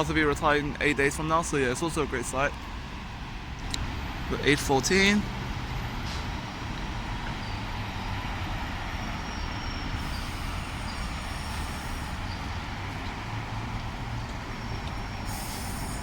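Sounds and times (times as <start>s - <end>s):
electric train rumble: 3.6s - 16.0s
high hiss: 9.9s - 12.5s, 15.1s - 16.0s.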